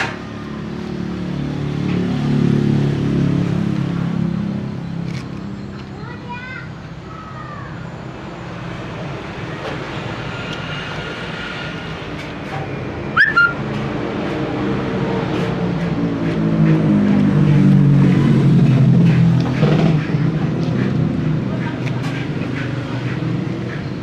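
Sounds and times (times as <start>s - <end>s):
engine running steadily: 0.0s - 24.0s
short high chirp: 13.2s - 13.6s.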